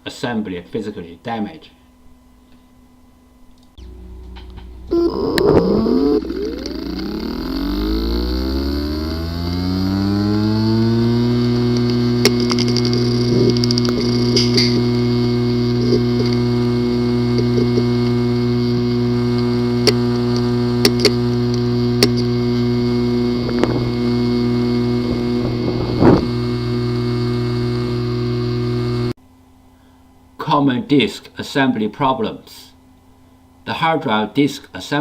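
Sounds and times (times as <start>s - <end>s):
hard drive buzzing hum: 1.0s - 30.4s
hard drive clicks: 3.6s - 8.1s, 9.4s - 29.1s.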